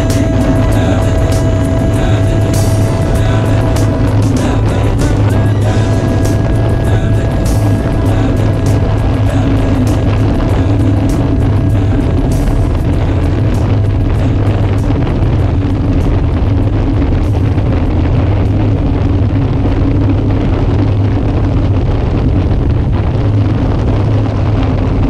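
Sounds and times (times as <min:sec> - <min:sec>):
engine drone: 0:00.0 - 0:25.0
wind buffeting microphone: 0:00.0 - 0:25.0.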